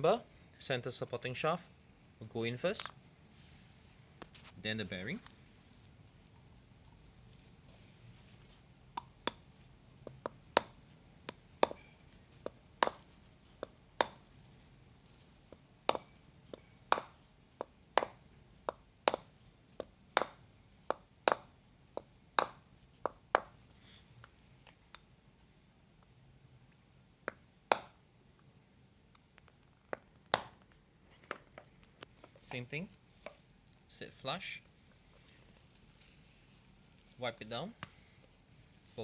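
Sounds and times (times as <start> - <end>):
mallet tapping metal bearing: 10.0 - 14.2, 15.5 - 23.5.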